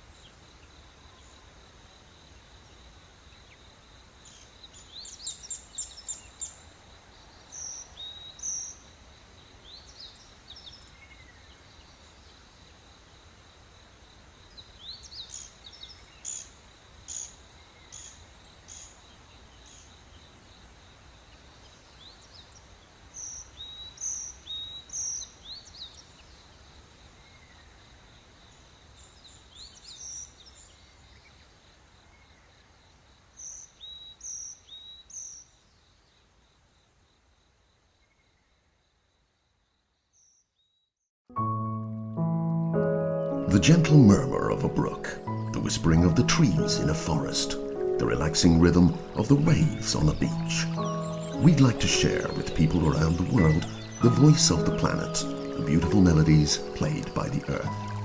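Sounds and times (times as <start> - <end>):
sharp high bird chirps: 45.2 - 58.0.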